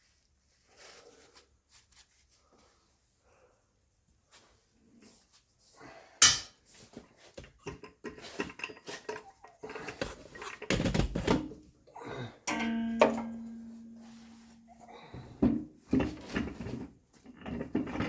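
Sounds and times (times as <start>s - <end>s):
tools and metal parts clinking: 7.4s - 11.6s, 12.4s - 14.0s, 15.4s - 18.0s
ringing metal strike: 12.5s - 14.9s.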